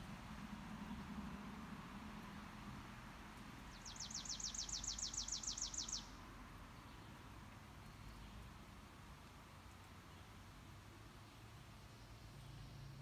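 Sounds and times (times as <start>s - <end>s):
faint outdoor background noise: 0.0s - 13.0s
songbird trill: 3.6s - 8.7s.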